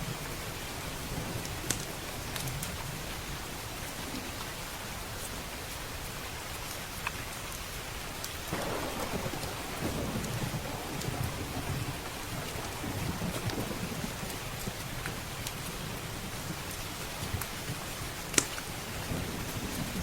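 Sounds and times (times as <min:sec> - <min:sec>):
heavy rain: 0:00.0 - 0:20.0
rolling thunder rumble: 0:08.5 - 0:16.8, 0:19.0 - 0:20.0.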